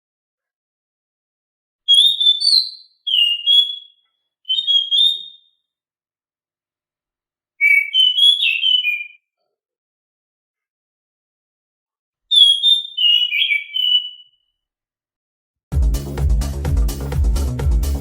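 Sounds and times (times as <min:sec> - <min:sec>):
thrush singing whistled phrases: 0:01.9 - 0:05.6, 0:07.6 - 0:09.2, 0:12.3 - 0:14.4.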